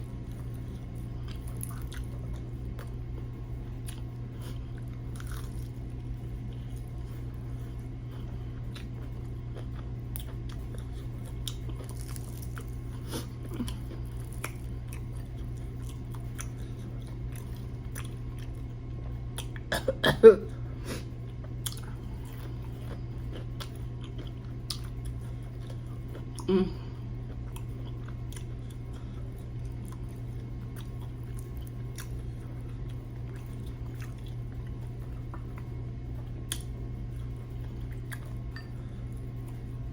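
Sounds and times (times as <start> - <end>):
person chewing crispy food: 0.0 - 19.7, 20.9 - 39.9
steady low hum: 0.0 - 39.9.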